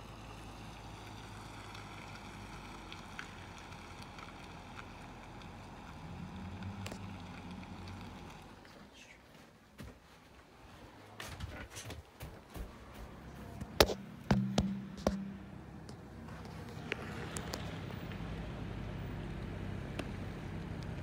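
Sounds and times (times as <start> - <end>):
distant car engine hum: 0.0 - 9.8, 10.5 - 21.0.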